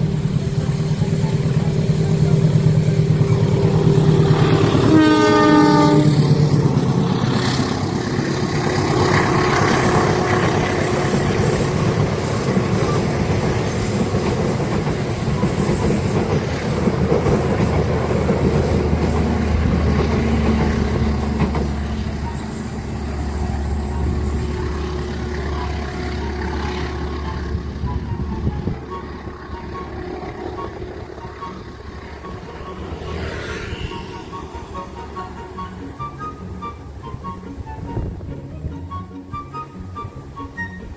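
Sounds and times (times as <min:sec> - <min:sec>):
train wheels clattering over rails: 0:00.0 - 0:36.7.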